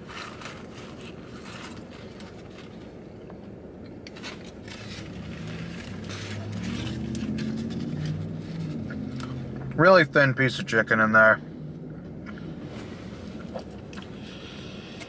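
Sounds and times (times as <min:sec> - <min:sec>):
vehicle low hum: 0:00.0 - 0:15.0
person chewing crunchy food: 0:13.3 - 0:15.0.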